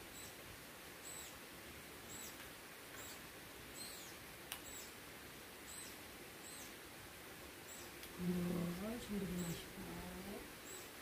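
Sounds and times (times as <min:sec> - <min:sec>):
bird chirping: 0:00.0 - 0:00.4, 0:01.0 - 0:01.4, 0:02.0 - 0:05.0, 0:05.6 - 0:06.8, 0:07.6 - 0:11.0
steady soft hiss: 0:00.0 - 0:11.0.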